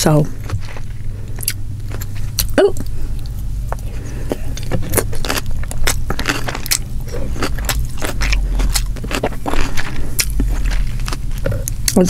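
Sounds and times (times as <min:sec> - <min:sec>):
wet chewing mouth sounds: 0:00.4 - 0:12.0.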